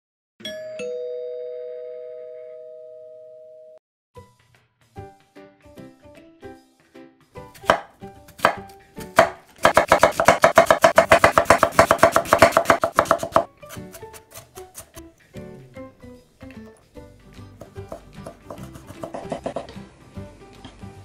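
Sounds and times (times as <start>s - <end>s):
knife chopping on wooden board: 7.5s - 15.0s, 17.6s - 19.7s.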